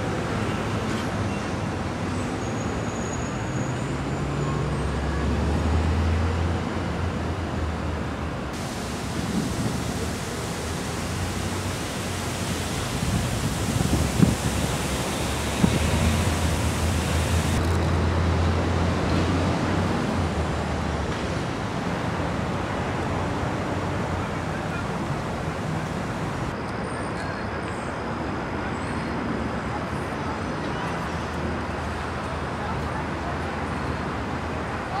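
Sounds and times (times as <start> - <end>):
rushing outdoor noise: 0.0 - 35.0.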